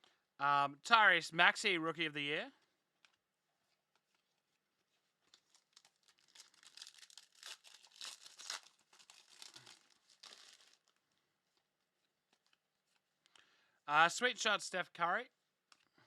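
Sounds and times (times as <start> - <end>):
wrapper crinkling and tearing: 5.2 - 11.0.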